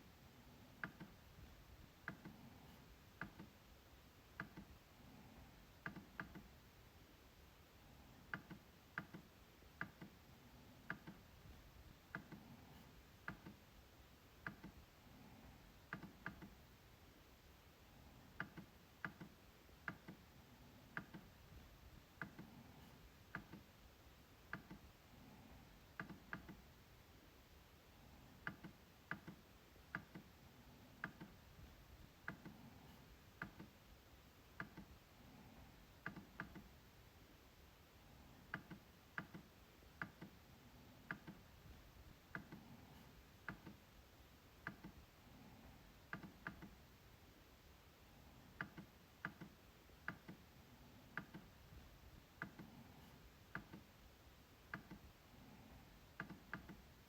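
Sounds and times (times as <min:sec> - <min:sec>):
trackpad clicks: 0:08.3 - 0:10.2, 0:10.8 - 0:11.3, 0:20.9 - 0:21.4, 0:23.3 - 0:23.7, 0:26.0 - 0:26.6, 0:28.4 - 0:30.3, 0:34.6 - 0:34.9, 0:38.4 - 0:40.4, 0:41.1 - 0:41.5, 0:44.6 - 0:45.0, 0:46.1 - 0:46.8, 0:48.6 - 0:50.4, 0:51.1 - 0:51.5, 0:53.5 - 0:53.9, 0:54.7 - 0:55.1, 0:56.2 - 0:56.8.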